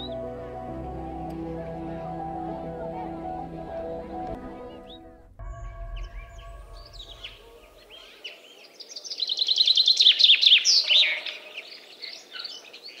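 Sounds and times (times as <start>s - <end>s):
held music chord: 0.0s - 8.1s.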